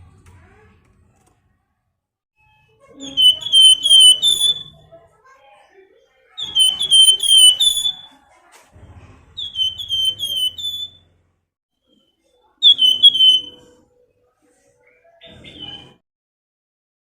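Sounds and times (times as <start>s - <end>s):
songbird whistling: 3.0s - 4.8s, 6.4s - 8.1s, 9.4s - 11.0s, 12.6s - 13.7s.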